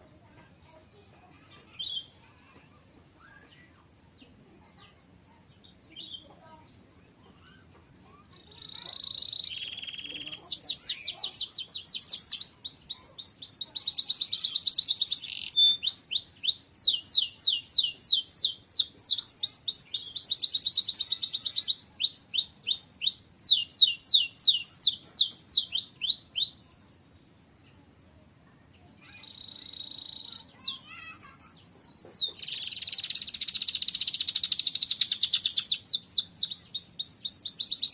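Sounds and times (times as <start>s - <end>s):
canary singing trills: 3.2s - 6.6s, 7.3s - 27.8s, 29.0s - 37.9s.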